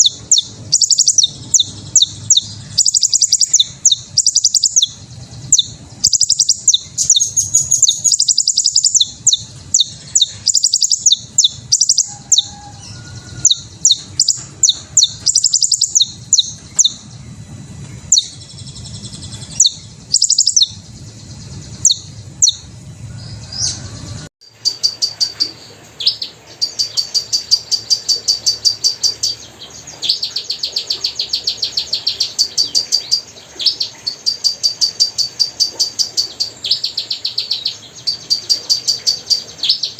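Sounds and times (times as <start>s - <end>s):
hummingbird chips and twitters: 0.0s - 22.7s, 24.4s - 39.9s.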